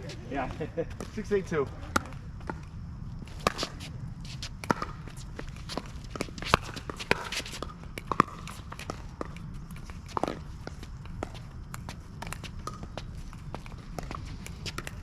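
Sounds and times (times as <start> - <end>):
footsteps on court: 0.0 - 15.0
shoes scuffing on wet court: 3.2 - 9.1.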